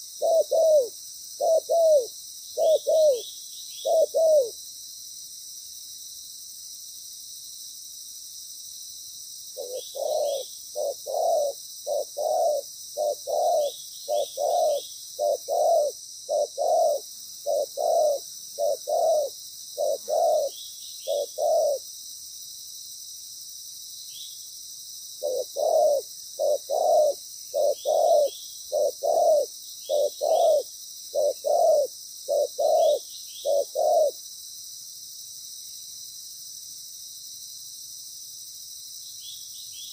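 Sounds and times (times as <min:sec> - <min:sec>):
dove cooing: 0:00.0 - 0:04.6, 0:09.6 - 0:21.8, 0:25.2 - 0:34.2.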